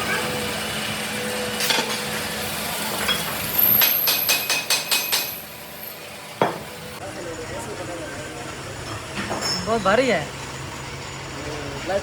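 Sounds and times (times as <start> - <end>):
workshop machinery hum: 0.0 - 12.0.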